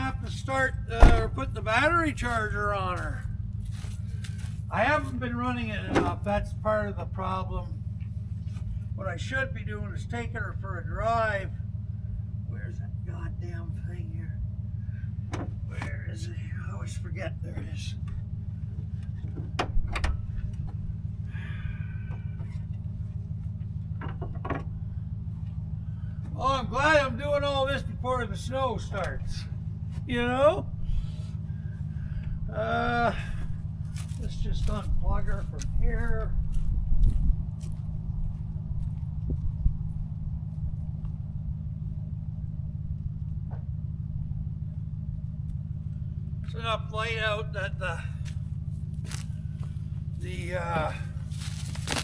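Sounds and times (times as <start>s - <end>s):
engine idling: 0.0s - 52.0s
sharp clicks and knocks: 24.0s - 24.7s
scraping rustle: 48.3s - 52.0s.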